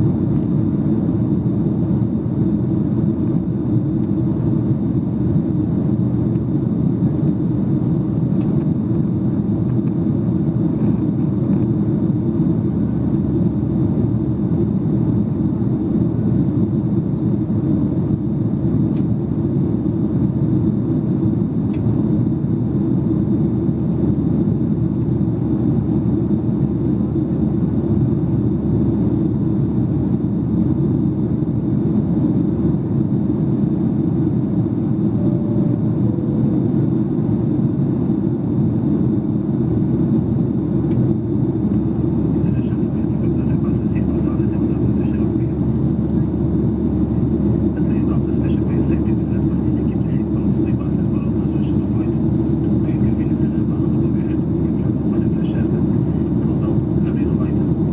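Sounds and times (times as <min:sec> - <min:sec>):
airplane cabin rumble: 0:00.0 - 0:57.9.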